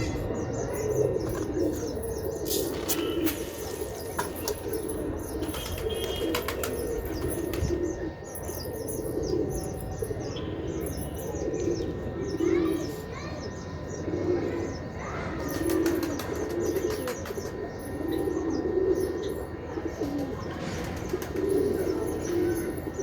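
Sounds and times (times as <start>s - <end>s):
pigeons cooing: 0.0s - 23.0s
wings flapping: 2.5s - 7.7s.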